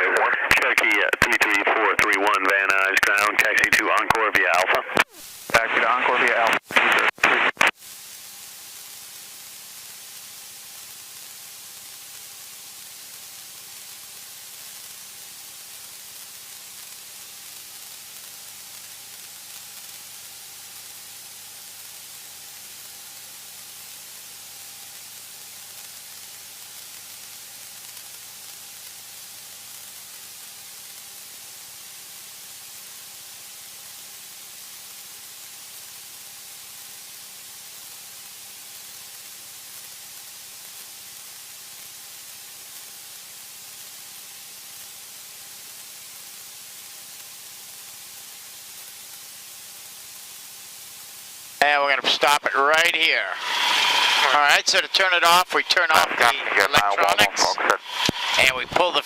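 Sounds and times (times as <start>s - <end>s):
intercom static hiss: 0.0s - 8.0s, 51.6s - 59.0s
faint steady hum: 0.0s - 15.0s, 50.8s - 59.0s.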